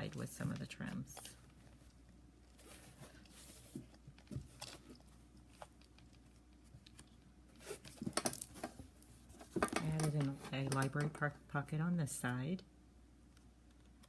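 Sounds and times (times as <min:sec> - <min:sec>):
paper rustling: 0:02.5 - 0:05.8.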